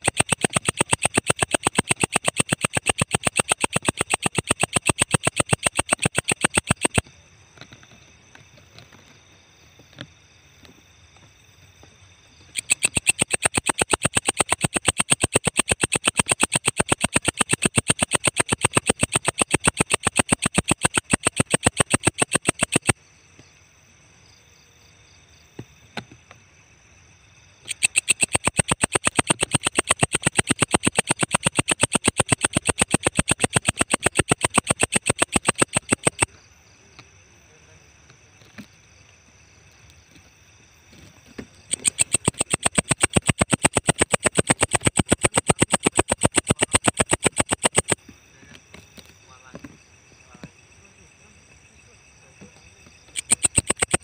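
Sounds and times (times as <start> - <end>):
insect chirping high-pitched: 0.0 - 8.4, 10.3 - 54.0.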